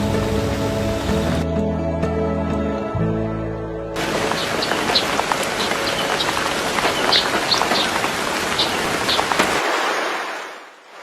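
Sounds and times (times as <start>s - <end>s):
steady rain: 0.0s - 1.5s, 4.0s - 11.0s
raindrops ticking: 4.0s - 9.6s.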